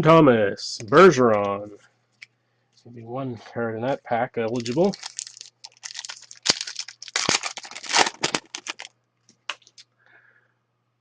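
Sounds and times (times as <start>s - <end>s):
cards being handled: 4.5s - 9.8s
wrapper crinkling and tearing: 4.5s - 9.8s.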